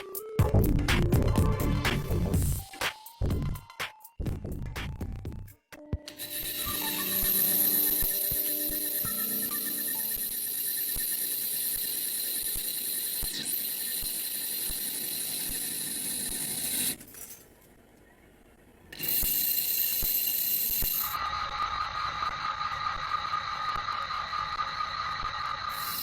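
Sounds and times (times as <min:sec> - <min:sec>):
machine hissing and squealing: 0:06.1 - 0:17.0, 0:19.0 - 0:26.0.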